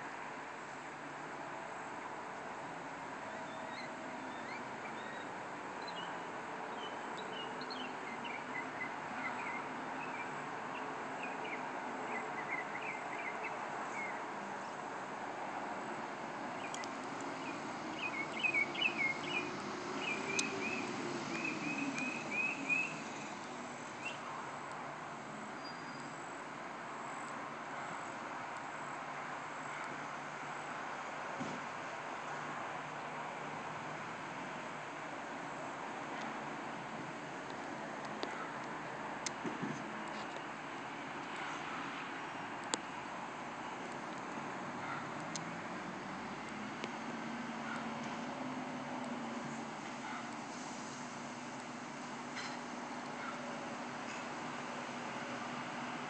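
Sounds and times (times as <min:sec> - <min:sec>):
steady background noise: 0:00.0 - 0:56.0
small birds chirping: 0:03.3 - 0:14.8, 0:16.5 - 0:24.3.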